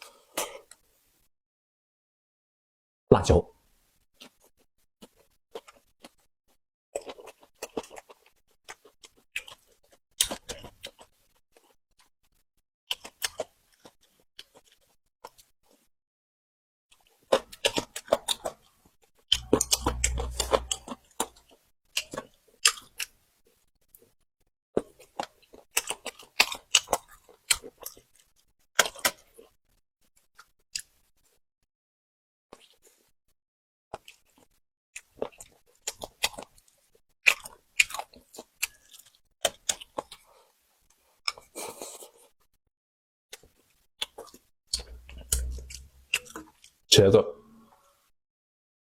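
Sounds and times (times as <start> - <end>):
chewing and crunching food: 4.2 - 15.9, 16.9 - 31.4, 32.5 - 33.2, 33.9 - 42.6, 43.3 - 46.8
low rumble: 19.4 - 21.0, 44.8 - 46.2.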